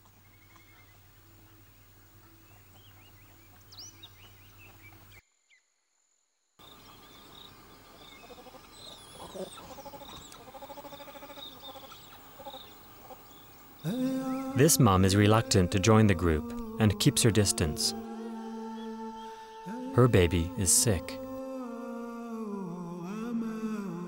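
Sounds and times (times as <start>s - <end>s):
high bird chirps: 6.6s - 14.6s
low pulsed animal calls: 6.6s - 23.1s.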